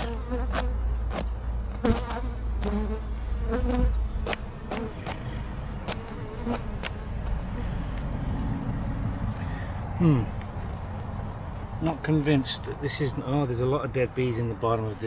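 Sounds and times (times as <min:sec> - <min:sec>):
honeybees buzzing: 0:00.0 - 0:09.4.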